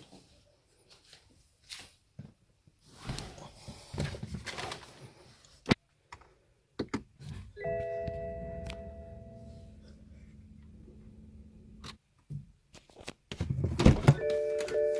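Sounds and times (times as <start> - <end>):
rustling handling noise: 2.8 - 5.6.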